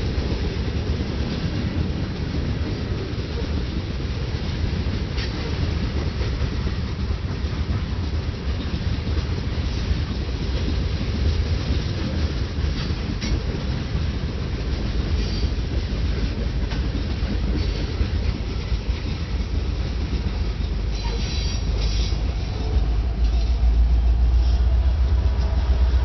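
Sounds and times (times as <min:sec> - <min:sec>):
train rumbling on track: 0:00.0 - 0:26.0
high-pitched wheel squeal: 0:20.9 - 0:23.6.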